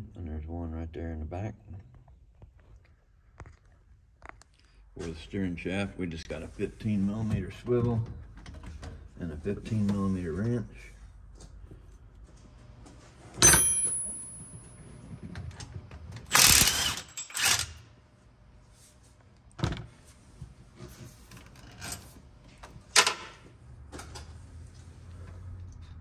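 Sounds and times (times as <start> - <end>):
hand tools clinking on metal: 13.4 - 14.7.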